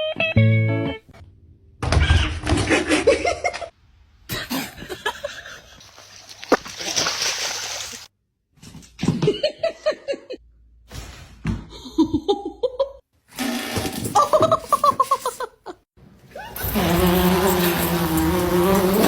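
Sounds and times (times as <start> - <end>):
water splashing: 5.9 - 8.1.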